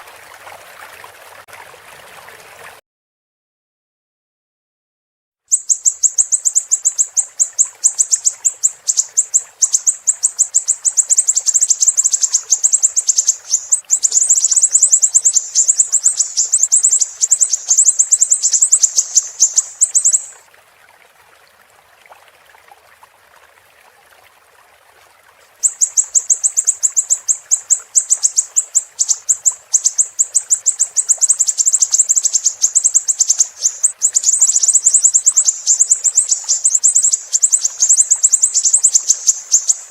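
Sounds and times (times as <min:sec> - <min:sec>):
bird chattering trill: 0:05.5 - 0:20.4, 0:25.6 - 0:39.9
faint hiss: 0:05.5 - 0:20.4, 0:25.6 - 0:39.9.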